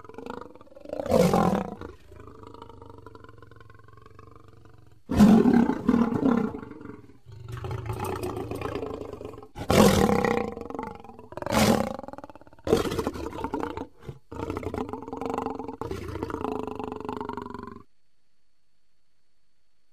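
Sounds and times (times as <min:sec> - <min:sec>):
lion roaring: 0:00.0 - 0:17.8.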